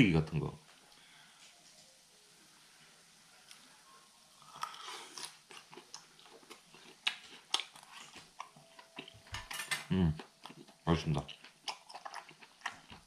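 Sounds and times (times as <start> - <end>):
person chewing with smacking sounds: 4.5 - 9.5, 10.1 - 13.0.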